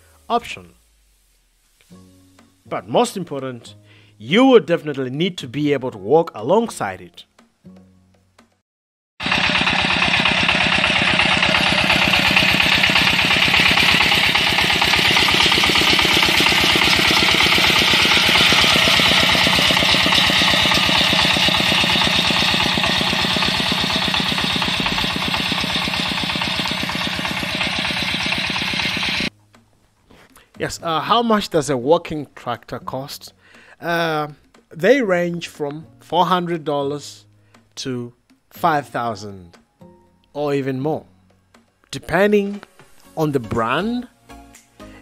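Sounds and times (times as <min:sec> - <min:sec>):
small tractor engine chugging: 0:09.2 - 0:29.3.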